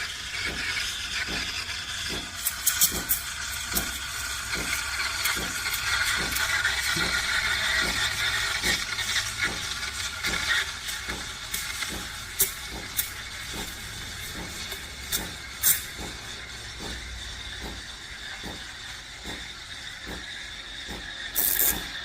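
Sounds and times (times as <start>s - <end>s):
espresso machine hiss: 0.0s - 22.0s.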